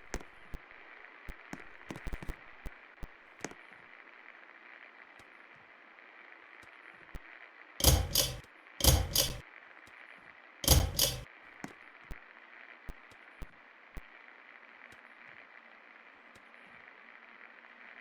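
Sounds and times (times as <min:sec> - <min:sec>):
ceiling fan mechanism clacking: 0:07.8 - 0:09.4, 0:10.6 - 0:11.2.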